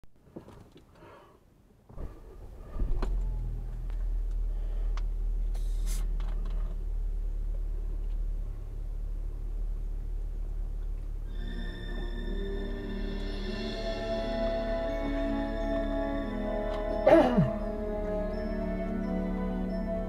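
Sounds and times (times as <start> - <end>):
car engine starting and idling: 0.2 - 20.0
brief hiss: 5.5 - 6.2.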